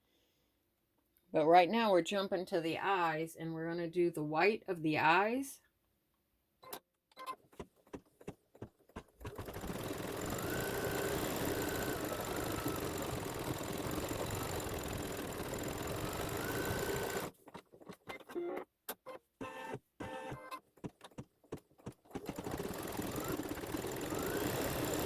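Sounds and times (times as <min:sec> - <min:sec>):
embroidery machine stitching: 0:08.9 - 0:18.4, 0:19.4 - 0:25.0.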